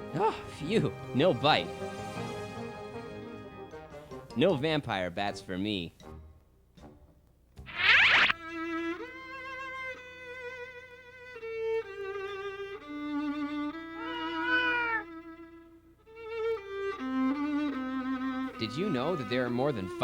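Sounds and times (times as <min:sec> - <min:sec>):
violin music: 0:08.4 - 0:20.0
cat meowing: 0:13.8 - 0:15.2.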